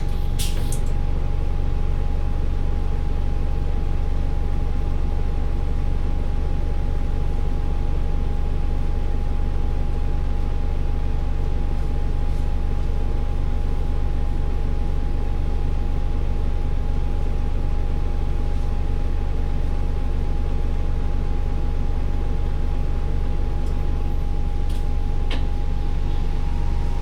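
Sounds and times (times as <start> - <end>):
diesel engine droning: 0.0 - 2.0, 22.5 - 27.0.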